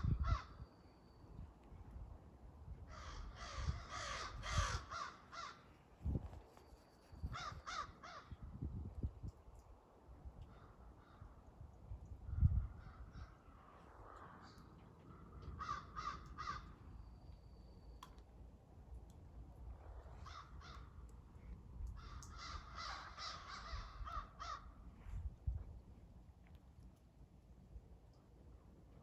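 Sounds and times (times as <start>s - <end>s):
crows cawing: 0.0s - 0.6s, 2.9s - 5.8s, 7.4s - 8.4s, 14.1s - 16.8s, 20.2s - 21.0s, 22.0s - 24.8s.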